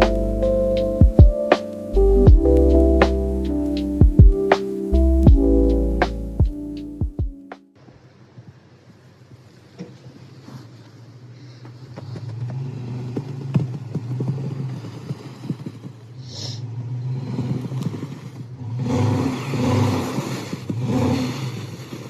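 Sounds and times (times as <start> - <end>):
vehicle engine and road hum: 11.2 - 22.0.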